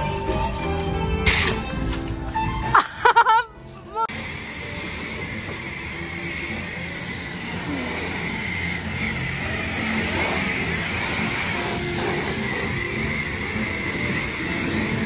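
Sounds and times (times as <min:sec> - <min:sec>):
pressure washer spraying water: 0:04.1 - 0:15.0.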